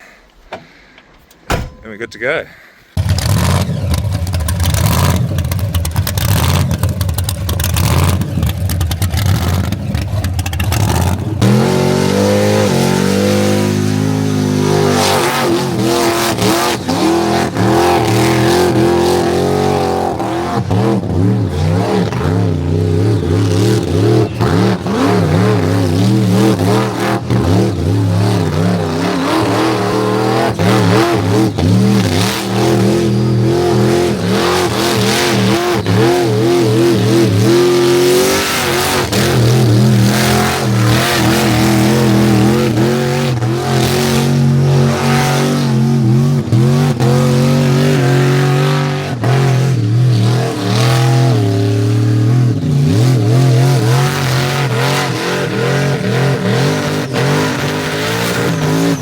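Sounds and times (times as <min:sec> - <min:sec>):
tyres spinning and squealing: 0:00.0 - 0:59.0
car engine revving high: 0:03.0 - 0:59.0.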